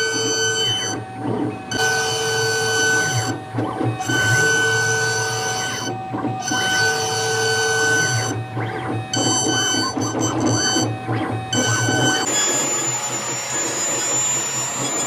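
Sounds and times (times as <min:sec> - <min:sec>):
stepper motors whining: 0:03.9 - 0:15.0.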